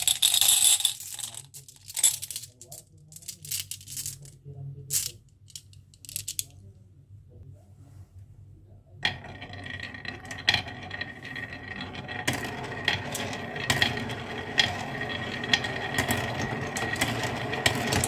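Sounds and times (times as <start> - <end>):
marbles rolling down track: 0.0 - 1.4, 9.0 - 18.0.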